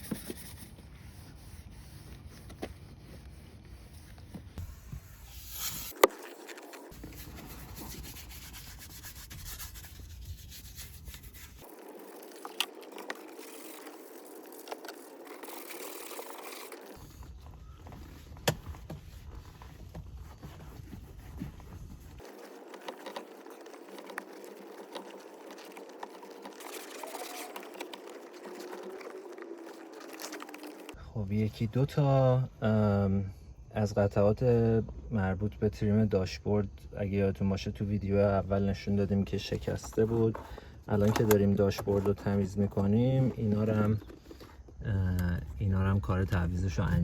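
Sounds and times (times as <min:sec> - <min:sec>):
rubbing and scraping of trim: 0:00.0 - 0:31.0.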